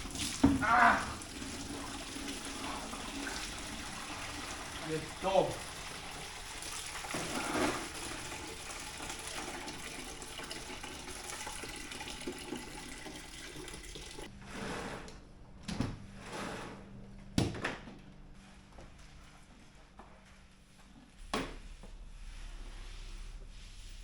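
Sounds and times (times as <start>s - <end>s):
fluid pouring in a stream: 0.0s - 0.5s, 1.1s - 14.3s.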